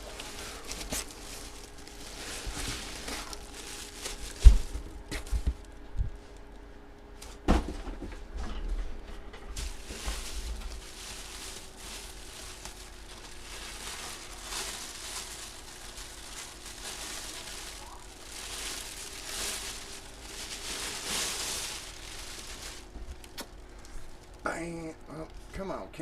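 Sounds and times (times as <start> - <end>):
packaging rustling and crinkling: 0.0 - 7.4, 9.5 - 24.5
faint steady hum: 0.0 - 26.0.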